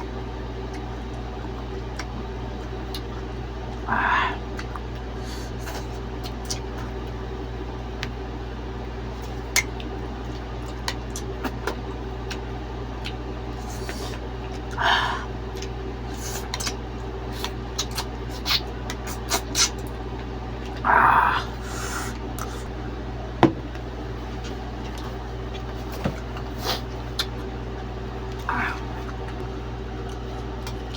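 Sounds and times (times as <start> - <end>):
steady fan-like hum: 0.0 - 30.9
mouth clicks and smacks eating: 17.4 - 20.0.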